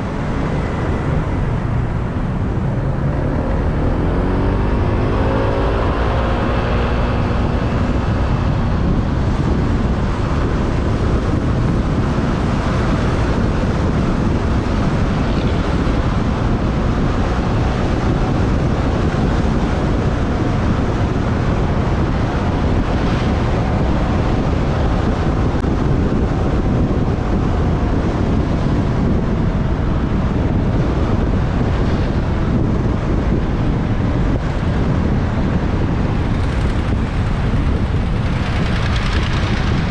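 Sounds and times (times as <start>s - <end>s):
traffic noise: 0.0s - 39.9s
wind rushing over microphone: 0.0s - 39.9s
motorbike engine: 35.8s - 39.9s.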